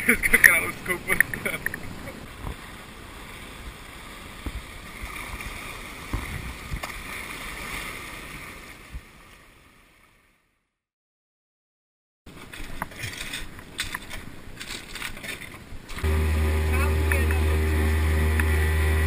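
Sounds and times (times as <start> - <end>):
water lapping and splashing: 0.0 - 10.6, 12.3 - 19.0
low knocks of small waves: 0.3 - 10.4.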